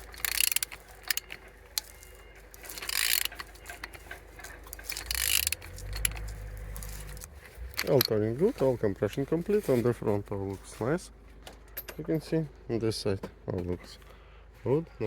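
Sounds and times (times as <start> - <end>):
ratchet wrench clicking: 0.0 - 8.2.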